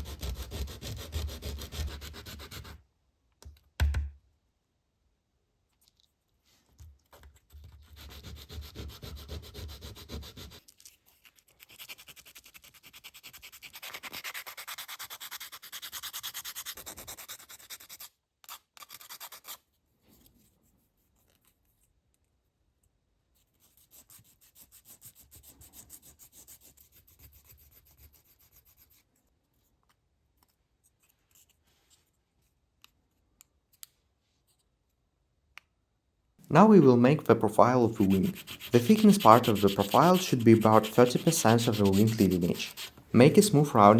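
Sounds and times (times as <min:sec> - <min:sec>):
sandpaper rubbing on wood: 0:00.0 - 0:02.8, 0:07.8 - 0:10.6, 0:11.7 - 0:18.1, 0:37.3 - 0:43.9.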